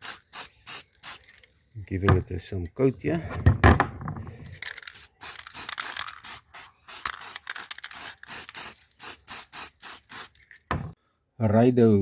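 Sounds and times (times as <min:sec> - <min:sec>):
spray paint can hissing: 0:00.0 - 0:01.5, 0:04.6 - 0:10.4.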